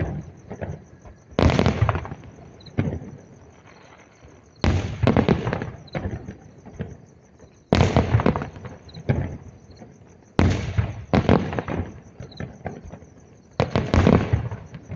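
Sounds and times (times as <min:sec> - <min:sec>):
fireworks crackling: 0:00.0 - 0:06.9, 0:13.6 - 0:14.8
fireworks bangs: 0:00.0 - 0:07.0, 0:07.7 - 0:14.9.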